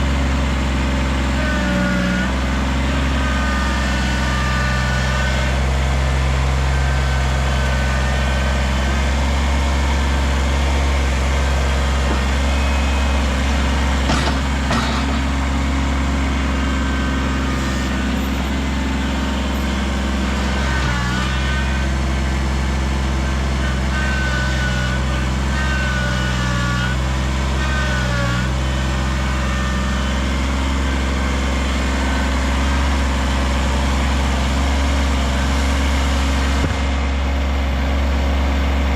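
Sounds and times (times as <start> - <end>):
tractor diesel engine running: 0.0 - 38.9
short wavering squeals: 1.6 - 22.0
knocks: 14.0 - 15.4.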